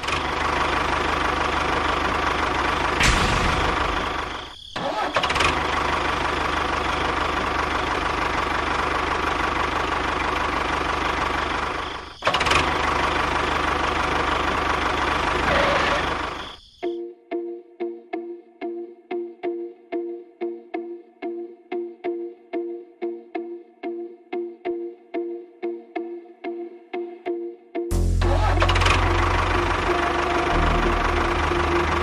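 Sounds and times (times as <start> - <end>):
model tractor engine running: 0.0 - 16.4, 28.2 - 32.0.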